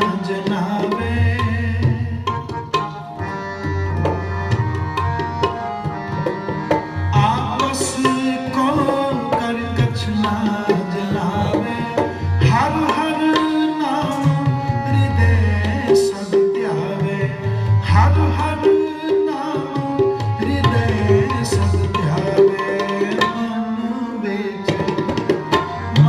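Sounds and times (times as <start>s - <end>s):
tabla playing: 0.0s - 26.0s
person singing: 7.0s - 26.0s.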